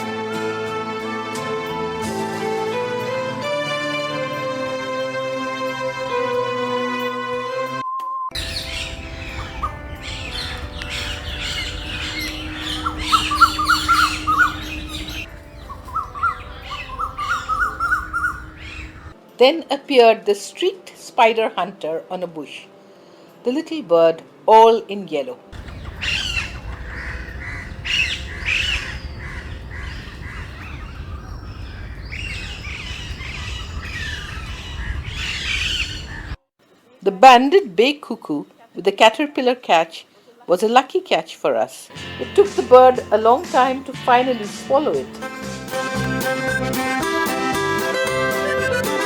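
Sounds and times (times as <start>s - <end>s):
bird quick rising notes: 8.3s - 19.2s, 25.6s - 36.4s
birds chirping: 8.3s - 19.2s, 25.6s - 36.4s, 41.9s - 49.0s
steady low rumble: 8.4s - 19.2s, 25.6s - 35.1s.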